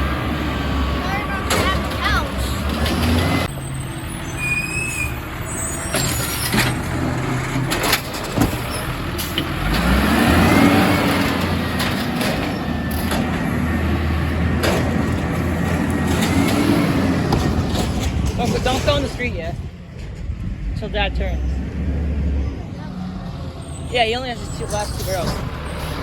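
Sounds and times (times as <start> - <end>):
truck engine running: 0.0 - 26.0
sharp knocks and clanks: 5.9 - 9.9, 11.2 - 13.7, 14.4 - 20.6.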